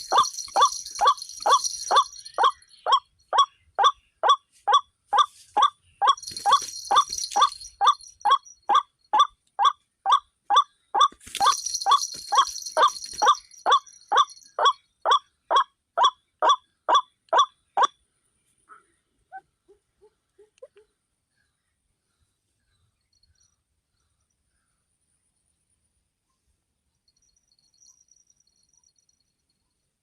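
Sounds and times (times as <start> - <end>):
waterhen calling: 0.0 - 9.8, 10.5 - 17.5.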